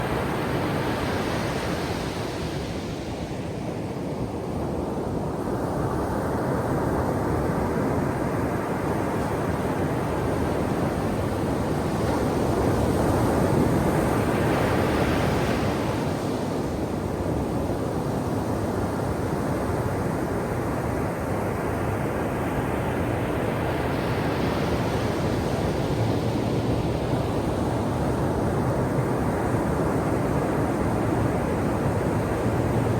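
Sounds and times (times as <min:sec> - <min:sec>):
ocean surf on shore: 0:09.3 - 0:32.9.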